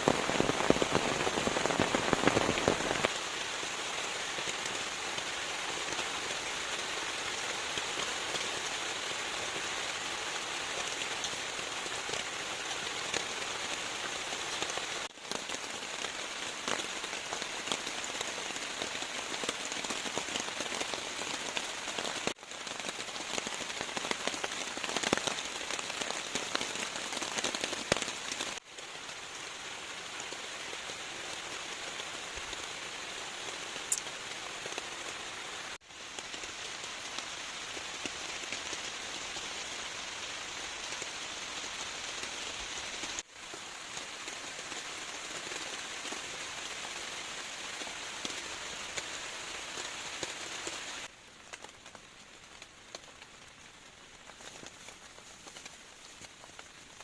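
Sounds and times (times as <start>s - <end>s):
raindrops ticking: 0.0s - 3.4s, 31.5s - 35.1s, 43.0s - 57.0s
steady rain: 0.0s - 57.0s.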